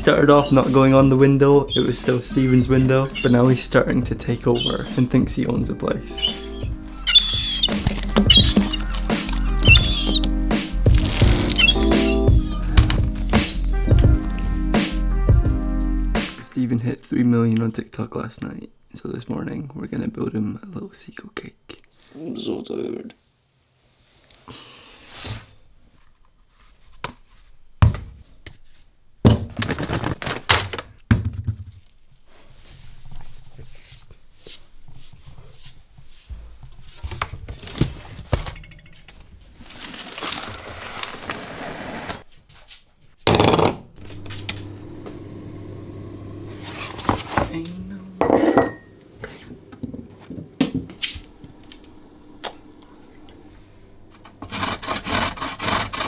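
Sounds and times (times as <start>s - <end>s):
bowls and utensils clinking: 48.2s - 49.0s
steady hum: 51.2s - 54.5s.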